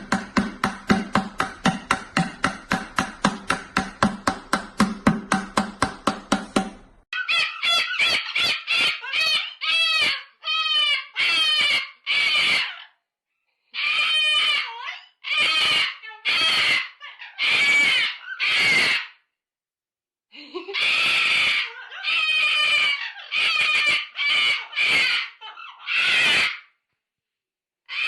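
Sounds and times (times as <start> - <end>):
parrot screaming: 7.1 - 13.0, 13.7 - 19.3, 20.7 - 26.8.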